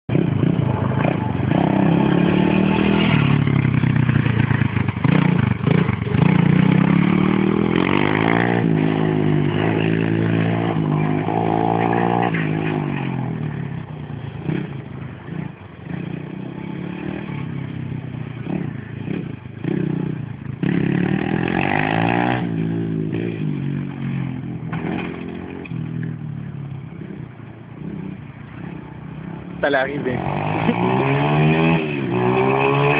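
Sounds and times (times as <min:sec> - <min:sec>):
dirt bike engine revving: 0:00.1 - 0:13.6, 0:18.4 - 0:26.1, 0:27.8 - 0:32.9.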